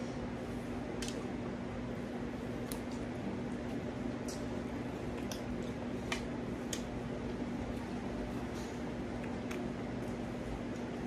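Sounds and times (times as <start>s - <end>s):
steady low hum: 0.0s - 11.0s
wet chewing: 3.6s - 10.9s.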